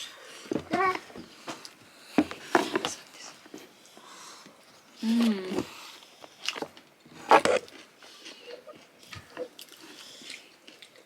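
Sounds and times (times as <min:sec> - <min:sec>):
person humming: 0:05.0 - 0:05.7
person biting and chewing: 0:06.4 - 0:11.0.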